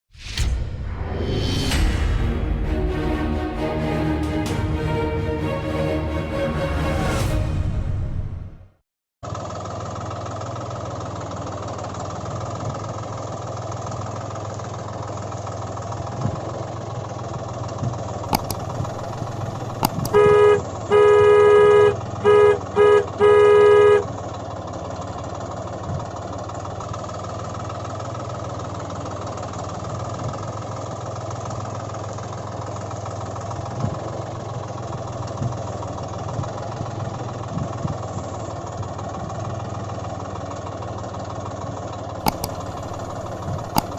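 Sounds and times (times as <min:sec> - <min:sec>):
horn honking: 0:02.7 - 0:08.5, 0:19.6 - 0:24.1
tractor engine running: 0:09.3 - 0:43.9.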